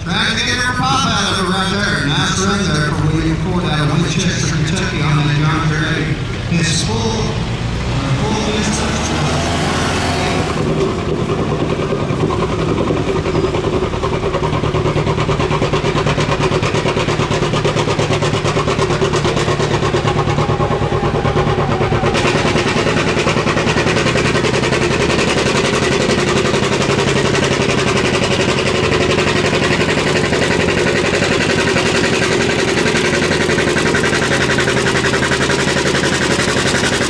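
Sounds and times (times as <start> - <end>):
loud engine rumble: 0.0 - 37.0.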